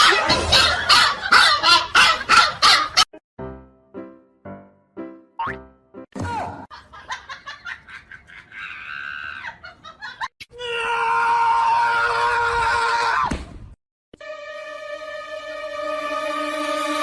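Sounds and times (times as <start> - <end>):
long loud scream: 10.5 - 13.4.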